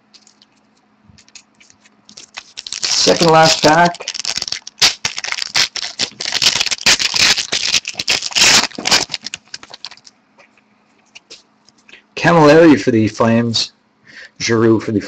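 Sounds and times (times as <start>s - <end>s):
card wrapper crinkling: 0.0s - 10.1s.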